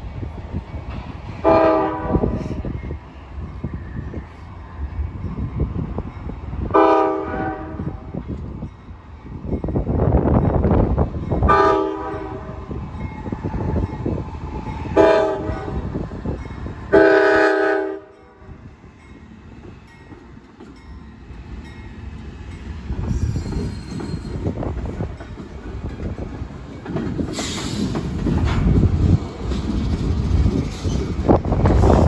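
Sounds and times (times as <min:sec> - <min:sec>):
passing train rumble: 0:00.0 - 0:32.0
wind buffeting microphone: 0:00.0 - 0:32.0
train horn blasts: 0:01.4 - 0:02.4, 0:06.7 - 0:08.1, 0:11.5 - 0:12.7, 0:14.9 - 0:15.9, 0:16.9 - 0:18.4.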